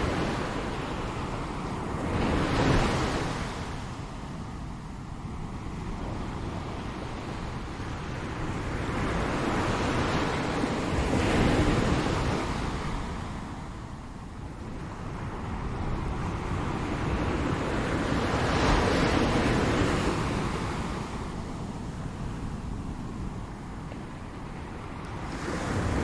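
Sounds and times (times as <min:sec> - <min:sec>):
ocean waves breaking: 0:14.7 - 0:26.0.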